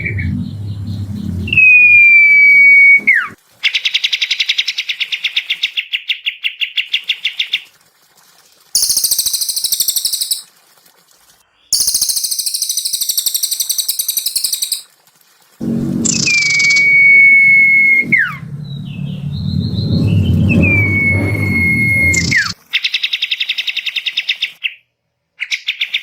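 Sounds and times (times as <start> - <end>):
songbird calls and trills: 8.8 - 10.5, 11.6 - 14.8.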